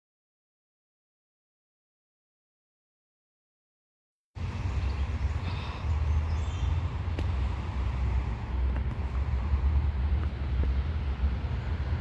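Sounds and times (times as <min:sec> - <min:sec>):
vehicle engine rumble: 0:04.4 - 0:12.0.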